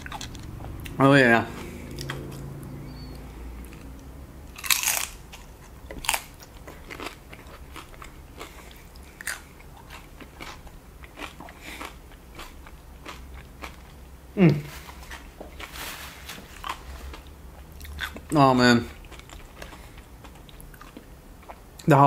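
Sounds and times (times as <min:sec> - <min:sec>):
tortilla chip crunching: 0:04.5 - 0:14.0.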